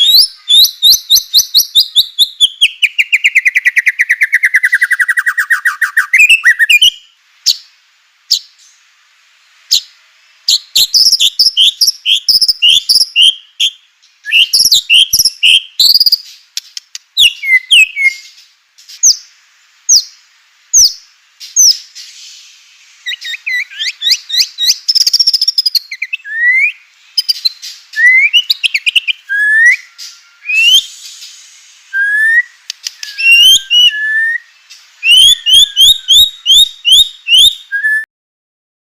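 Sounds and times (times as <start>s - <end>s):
bird singing whistled notes: 0.0s - 7.7s, 8.3s - 8.9s, 9.7s - 38.1s
sharp clicking bird notes: 16.0s - 17.1s, 32.6s - 33.5s.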